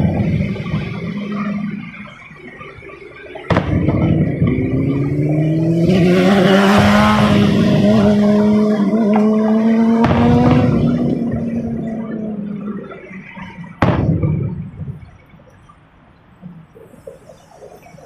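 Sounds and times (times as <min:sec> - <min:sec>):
car engine revving: 0:00.0 - 0:15.0
sharp bangs: 0:03.4 - 0:12.0, 0:13.8 - 0:15.5.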